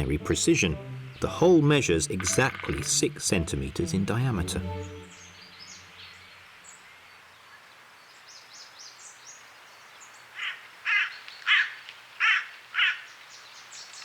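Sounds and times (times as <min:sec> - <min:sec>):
small birds chirping: 0:04.4 - 0:14.0
crow cawing: 0:10.4 - 0:13.1.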